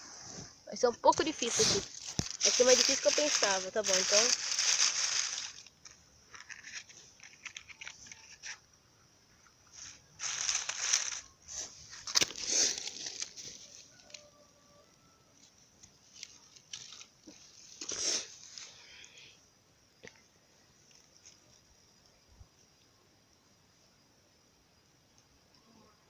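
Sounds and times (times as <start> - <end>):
kindling and matches scraping: 0.1 - 8.7, 9.6 - 14.3, 15.4 - 18.7.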